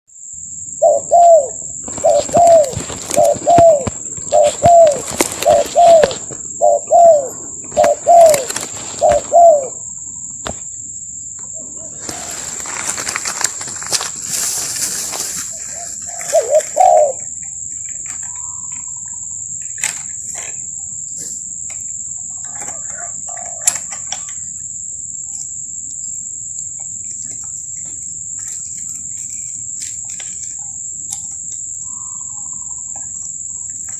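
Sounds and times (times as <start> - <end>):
high-pitched insect buzz: 0.1 - 33.9
doves cooing: 0.8 - 10.5, 11.4 - 24.4, 31.8 - 33.9
rustling: 1.8 - 6.7, 7.7 - 9.6, 11.9 - 17.2.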